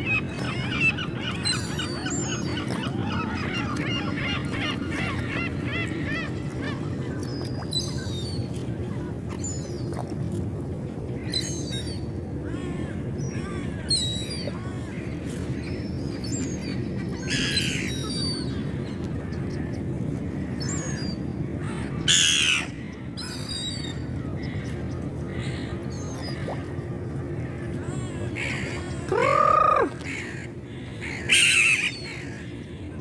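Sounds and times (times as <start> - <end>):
seagulls squawking: 0.0 - 8.4.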